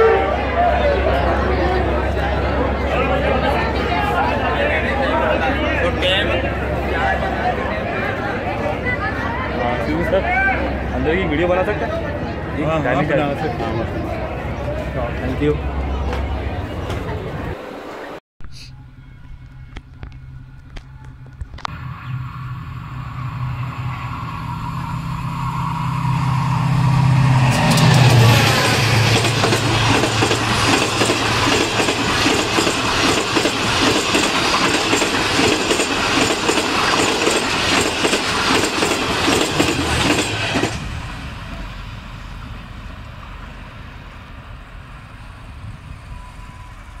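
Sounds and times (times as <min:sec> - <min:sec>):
diesel locomotive engine passing: 0:00.0 - 0:18.2, 0:18.8 - 0:47.0
wheels rattling on rails: 0:19.2 - 0:47.0.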